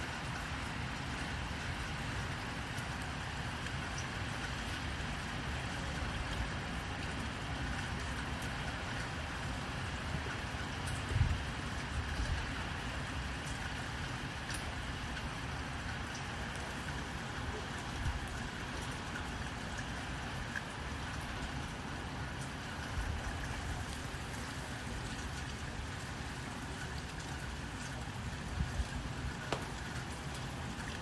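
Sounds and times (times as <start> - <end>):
rain hiss: 0.0 - 31.0
wood fire crackling: 29.4 - 31.0.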